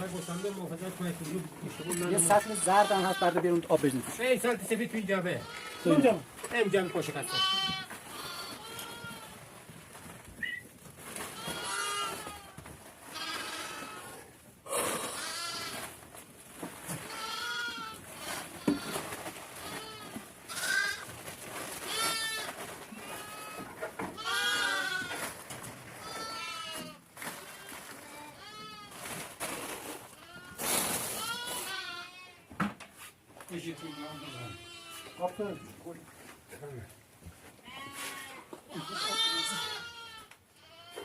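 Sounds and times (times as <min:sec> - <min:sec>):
sheep and goats bleating: 0:00.0 - 0:01.0, 0:01.6 - 0:03.8, 0:05.1 - 0:09.5, 0:11.1 - 0:16.0, 0:17.0 - 0:21.1, 0:21.7 - 0:29.2, 0:30.1 - 0:32.5, 0:33.5 - 0:35.9, 0:37.6 - 0:41.0.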